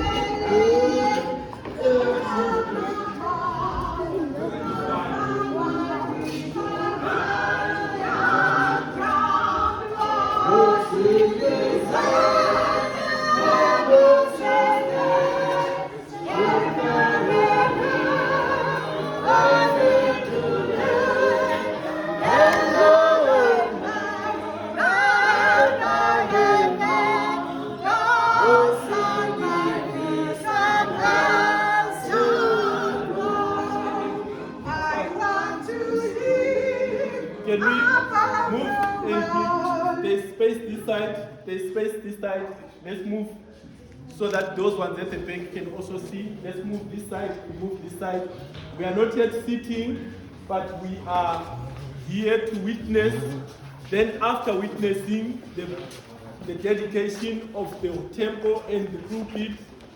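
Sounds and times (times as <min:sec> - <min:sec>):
choir and congregation singing a hymn: 0:00.0 - 0:43.0.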